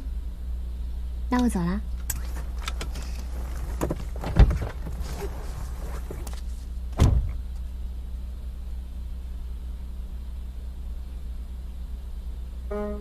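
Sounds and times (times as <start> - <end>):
steady low hum: 0.0 - 13.0
heavy door thuds: 3.8 - 5.0, 7.0 - 7.4.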